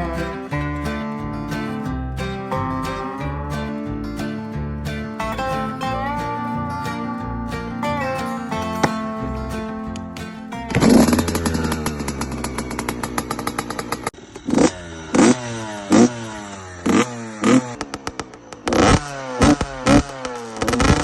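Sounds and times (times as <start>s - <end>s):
dirt bike engine revving: 10.6s - 21.0s.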